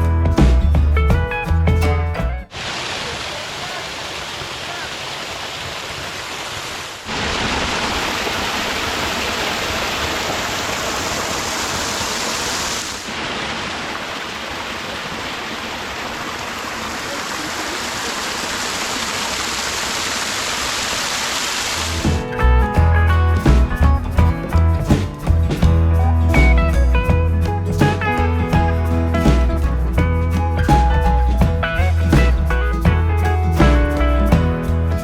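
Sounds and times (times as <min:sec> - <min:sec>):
waterfall splashing: 0:02.4 - 0:22.4.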